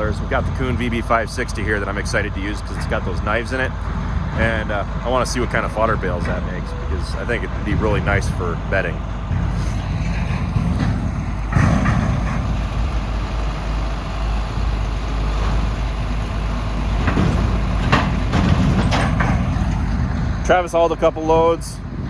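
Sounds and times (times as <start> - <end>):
heavy vehicle engine rumbling: 0.0 - 22.0
sharp knocks and rattles: 9.3 - 20.4.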